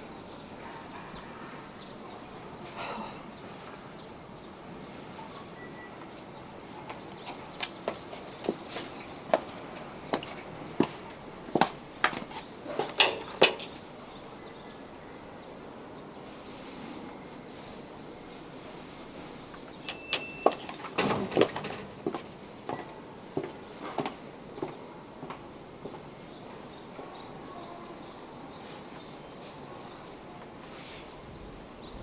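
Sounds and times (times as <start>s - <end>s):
steady background noise: 0.0s - 32.0s
sharp clicks and knocks: 12.8s - 13.8s.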